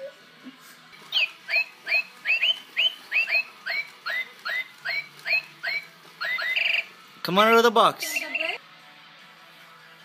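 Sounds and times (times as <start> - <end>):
toy bird chirping: 1.1 - 7.0, 8.0 - 8.6.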